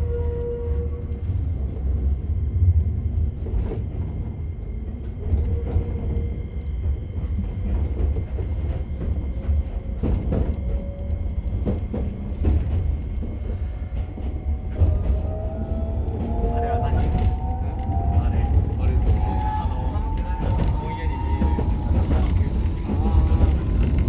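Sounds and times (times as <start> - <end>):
train low rumble: 0.0 - 24.0.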